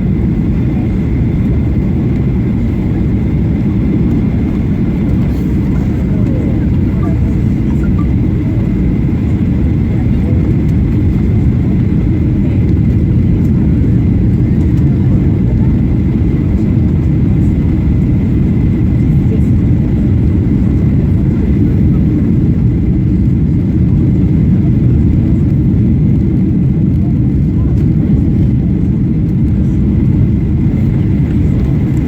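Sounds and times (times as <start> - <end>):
engine and airflow rumble: 0.0 - 32.0.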